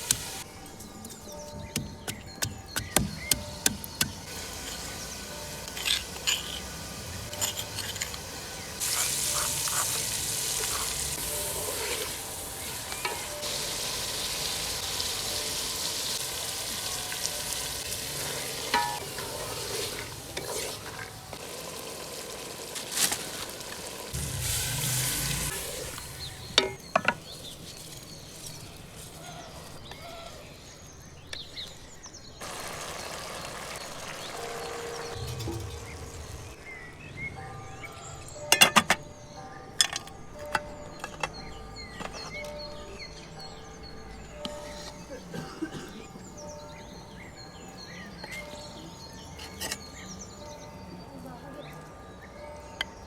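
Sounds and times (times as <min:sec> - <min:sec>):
food sizzling in a pot: 0:00.0 - 0:00.5, 0:03.2 - 0:29.7, 0:32.4 - 0:36.6
spoon stirring in a pot: 0:17.8 - 0:21.5.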